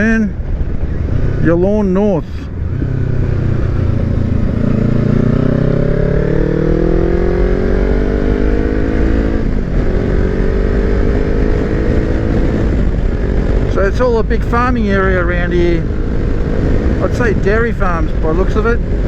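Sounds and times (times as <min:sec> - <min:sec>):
motorcycle engine accelerating: 0:00.0 - 0:19.0
wind rumble on microphone: 0:00.0 - 0:19.0.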